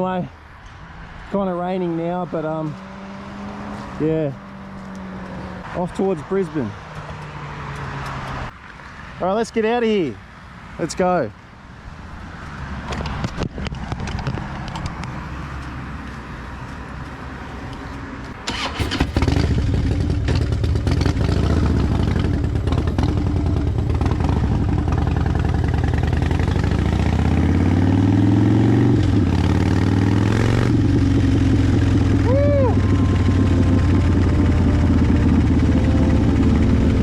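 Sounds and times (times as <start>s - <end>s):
motorcycle engine accelerating: 2.6s - 5.6s, 18.4s - 37.0s.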